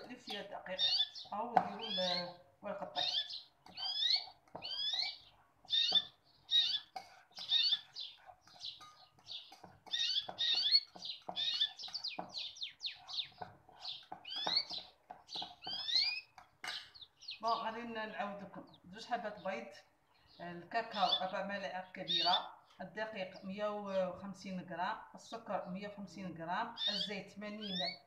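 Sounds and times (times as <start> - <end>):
bird chirping: 0.0 - 24.2, 26.7 - 28.0
fork mashing in metal bowl: 2.8 - 17.1.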